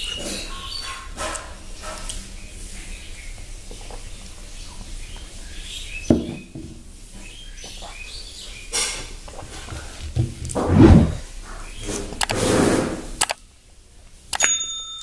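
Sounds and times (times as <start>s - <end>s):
small birds chirping: 2.0s - 8.9s.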